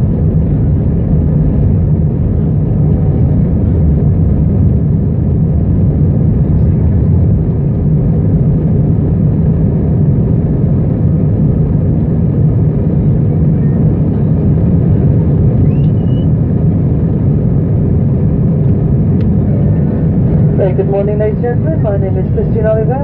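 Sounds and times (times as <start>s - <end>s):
aircraft cabin engine rumble: 0.0s - 23.0s.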